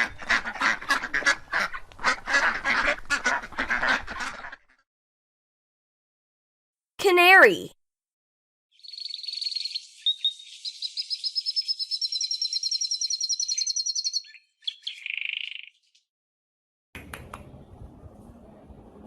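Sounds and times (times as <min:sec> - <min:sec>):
canary singing trills: 0:08.7 - 0:15.9.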